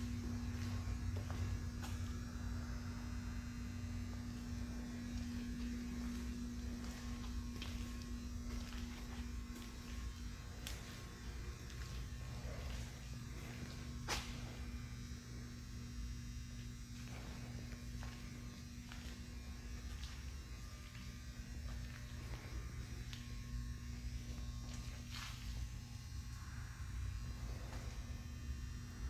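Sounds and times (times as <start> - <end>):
truck low buzzing drone: 0.0 - 29.0.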